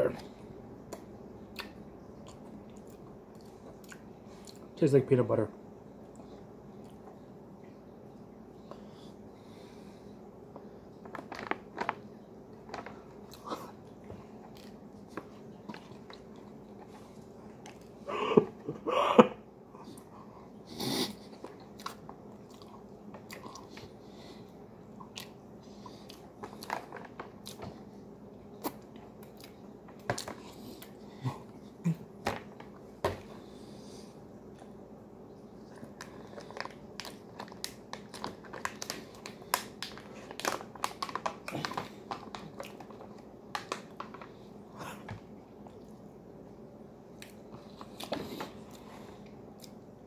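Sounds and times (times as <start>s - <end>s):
person chewing: 0.9s - 4.7s, 13.2s - 17.0s, 21.3s - 23.9s, 25.0s - 27.7s
pouch crinkling: 36.0s - 44.4s.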